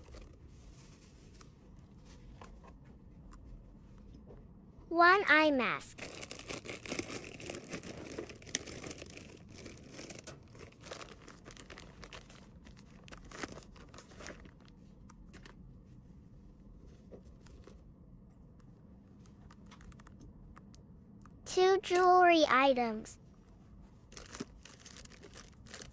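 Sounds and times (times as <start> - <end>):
crinkly packaging rustling: 5.9 - 15.6, 24.0 - 25.9.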